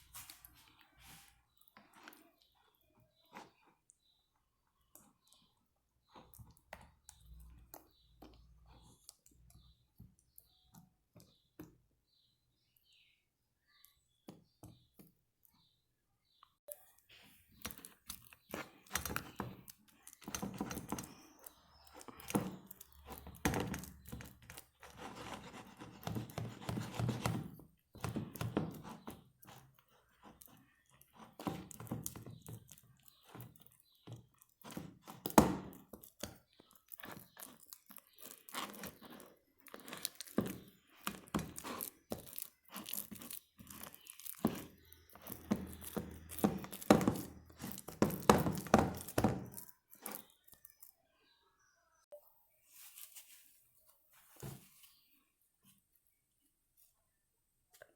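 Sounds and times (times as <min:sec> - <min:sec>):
slime crackling and tearing: 0:35.7 - 0:46.9.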